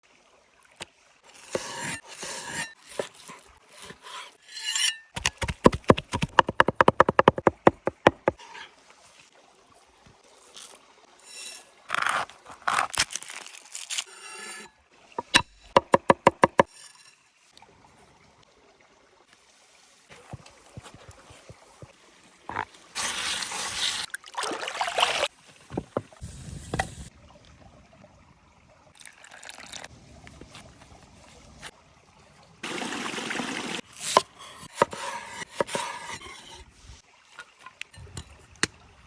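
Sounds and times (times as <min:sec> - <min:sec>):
knife chopping on cutting board: 0:05.2 - 0:08.4, 0:15.2 - 0:16.7.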